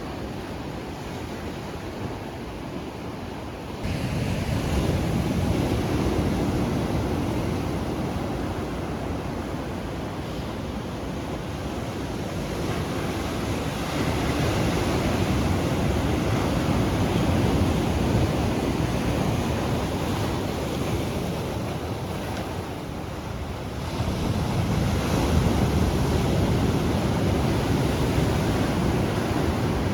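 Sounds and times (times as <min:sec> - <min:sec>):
ocean surf washing onto beach: 0:00.0 - 0:29.9.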